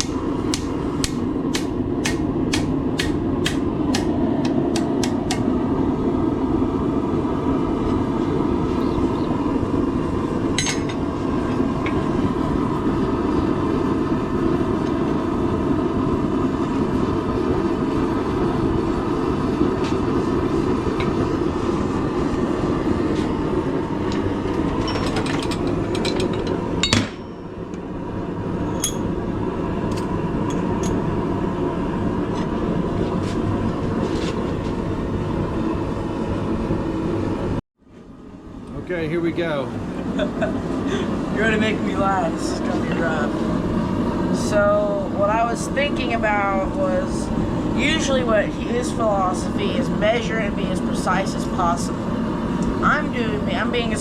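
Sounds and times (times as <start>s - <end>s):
hammer strikes on hot steel: 0.0s - 5.5s, 25.6s - 27.6s
forge roaring: 0.0s - 54.0s.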